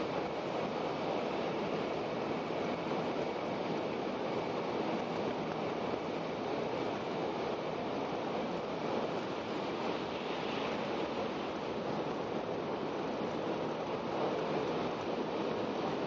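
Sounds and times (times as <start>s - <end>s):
wheels on rail: 0.0s - 16.0s
train cabin air rushing: 8.8s - 12.0s.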